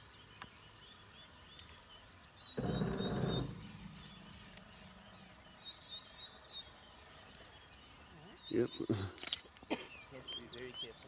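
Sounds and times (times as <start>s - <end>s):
bird chirping: 0.0s - 11.0s
rough burst of noise: 2.6s - 5.6s
low hum: 2.6s - 5.9s.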